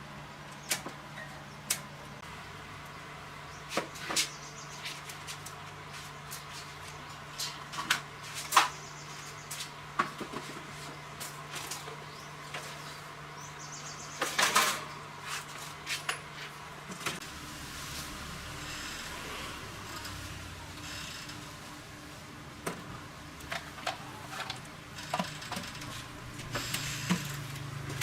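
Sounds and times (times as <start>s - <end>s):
steady low hum: 16.5s - 28.0s.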